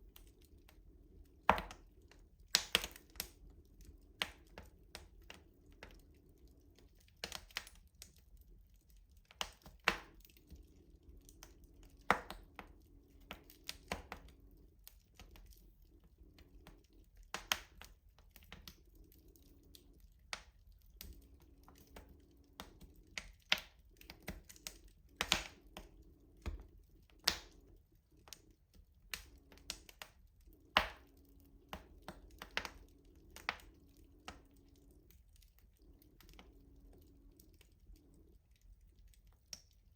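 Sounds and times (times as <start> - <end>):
wood fire crackling: 0.0 - 39.9
faint low hum: 10.0 - 39.9.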